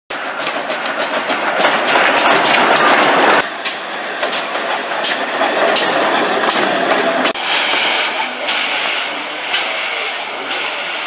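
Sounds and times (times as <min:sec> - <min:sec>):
wheels clicking over rail joints: 0:00.1 - 0:07.3
train rushing on rails: 0:00.1 - 0:11.0.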